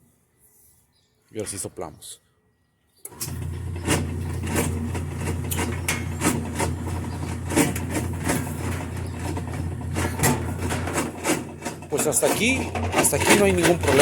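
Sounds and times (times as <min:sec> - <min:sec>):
washing machine motor hum: 0:03.1 - 0:14.0
clicks and knocks: 0:03.8 - 0:14.0.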